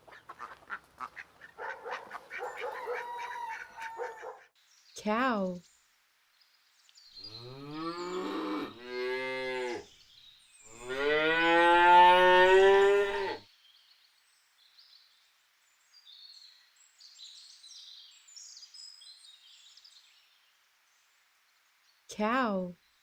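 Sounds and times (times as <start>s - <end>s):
cow mooing: 7.4s - 9.8s, 10.7s - 13.4s.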